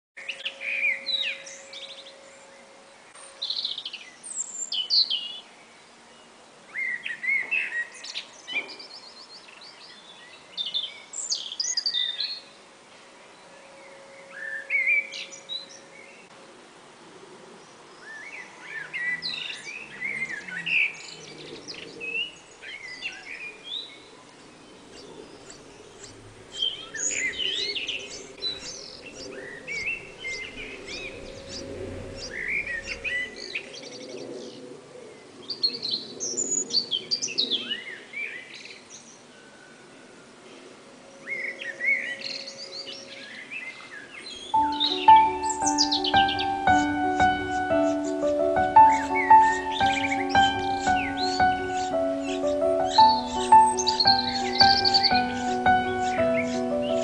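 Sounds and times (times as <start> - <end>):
small birds chirping: 18.0 - 34.0, 44.2 - 57.0.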